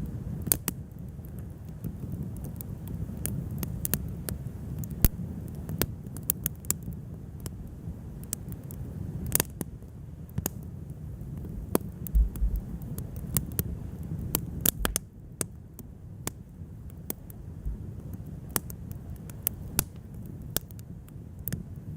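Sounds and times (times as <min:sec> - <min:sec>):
wood fire crackling: 0:00.0 - 0:21.9
dull low thumps: 0:12.1 - 0:12.8, 0:14.7 - 0:15.0, 0:17.6 - 0:17.9.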